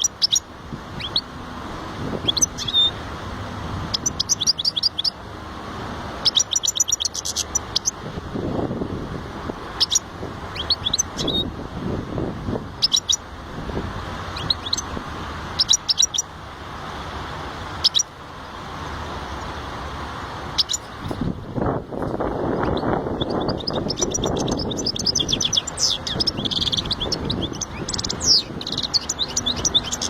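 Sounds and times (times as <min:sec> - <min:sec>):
finch chirping: 0:00.0 - 0:01.3, 0:02.2 - 0:03.0, 0:03.9 - 0:05.2, 0:06.2 - 0:08.0, 0:09.8 - 0:11.5, 0:12.8 - 0:13.2, 0:14.3 - 0:14.9, 0:15.6 - 0:16.3, 0:17.8 - 0:18.1, 0:20.6 - 0:21.2, 0:22.6 - 0:30.0.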